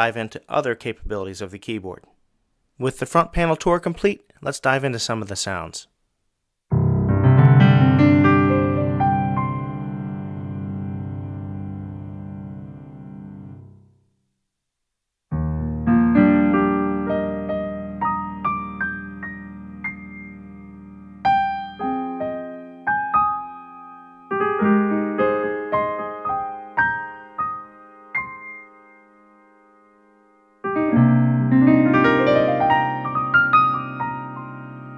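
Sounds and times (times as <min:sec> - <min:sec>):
keyboard playing piano tone: 0:06.7 - 0:13.8, 0:15.3 - 0:34.9.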